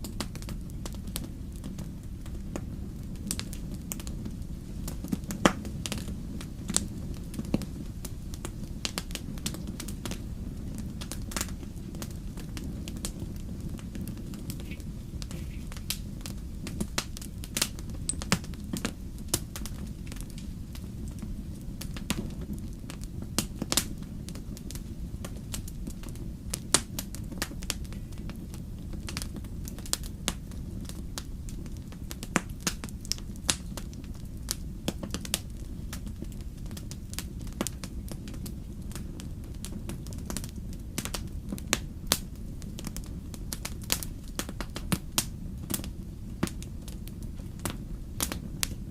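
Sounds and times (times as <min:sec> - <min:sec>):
low rumble of burning: 0:00.0 - 0:48.9
wood fire crackling: 0:00.0 - 0:48.9.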